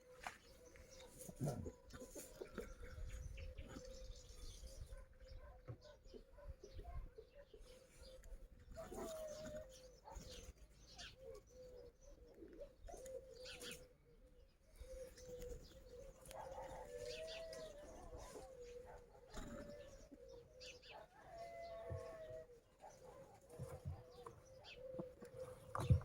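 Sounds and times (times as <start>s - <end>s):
soft low bird calls: 0.0s - 26.0s.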